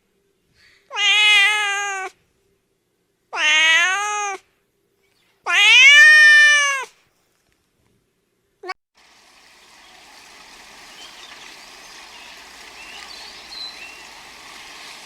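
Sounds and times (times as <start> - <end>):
cat meowing: 0.9 - 2.2, 3.3 - 4.4, 5.5 - 6.9.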